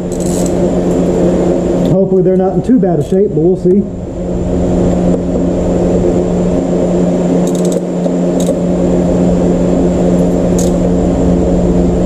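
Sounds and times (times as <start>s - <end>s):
mechanical hum: 0.0s - 12.0s
metallic clicks of hand tools: 7.5s - 7.8s.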